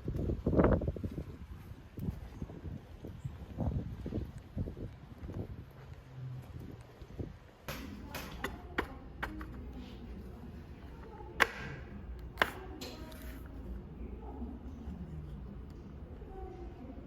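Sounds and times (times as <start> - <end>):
sharp clicks and knocks: 7.7 - 13.5.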